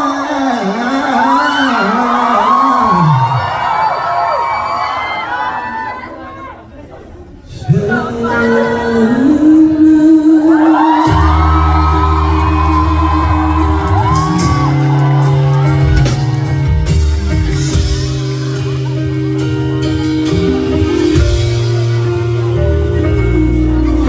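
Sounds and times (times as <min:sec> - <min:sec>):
crowd shouting and whooping: 0:00.0 - 0:06.7, 0:10.3 - 0:24.0
live pop-rock band playing: 0:09.2 - 0:24.0.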